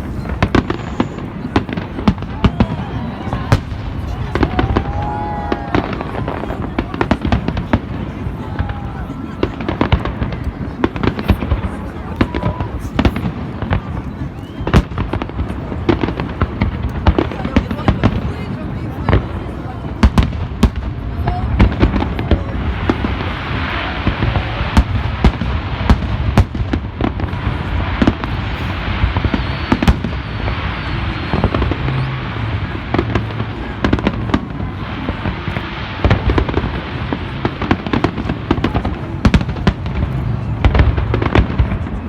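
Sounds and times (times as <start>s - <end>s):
fireworks bursting: 0.0s - 42.0s
rumble and crackle: 19.2s - 42.0s.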